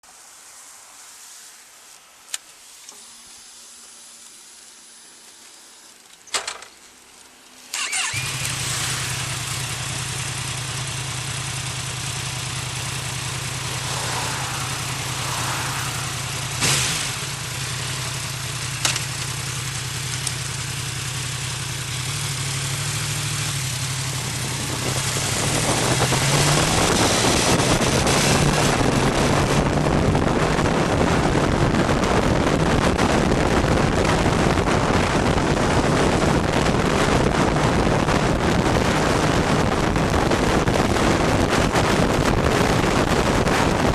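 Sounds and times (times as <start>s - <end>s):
motorcycle engine idling: 8.0s - 13.9s, 16.0s - 26.0s.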